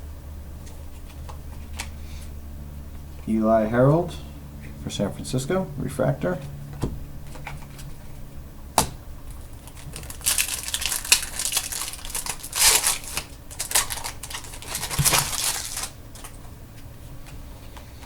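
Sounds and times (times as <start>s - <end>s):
card packaging crinkling: 9.3s - 16.5s.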